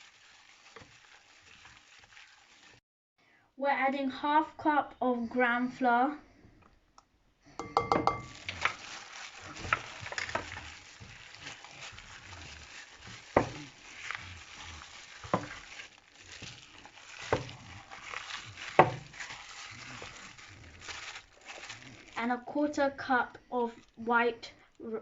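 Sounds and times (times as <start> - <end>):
wet rustle of mixing: 0.0 - 2.8, 8.0 - 22.3
knocks against a bowl: 7.6 - 8.3.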